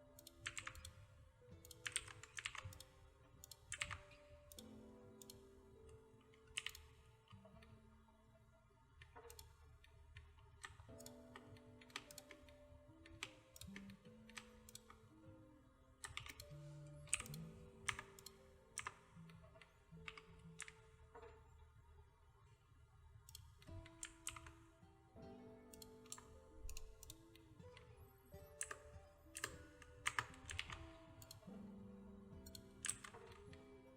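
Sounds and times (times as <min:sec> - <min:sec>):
keyboard keys tapping: 0:00.0 - 0:08.0, 0:09.0 - 0:21.7, 0:23.2 - 0:33.9
soft background music: 0:00.0 - 0:33.9
mouse clicks: 0:00.1 - 0:05.5, 0:06.3 - 0:07.7, 0:09.0 - 0:09.6, 0:10.2 - 0:15.1, 0:16.0 - 0:21.4, 0:23.3 - 0:24.7, 0:25.7 - 0:27.5, 0:28.4 - 0:31.7, 0:32.4 - 0:33.7.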